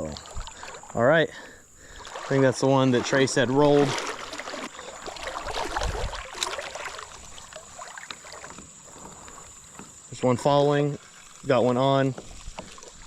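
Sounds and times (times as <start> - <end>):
creek water around a kayak: 0.0 - 13.0
small water splashes: 0.0 - 13.0
wind rumble on microphone: 5.5 - 6.3.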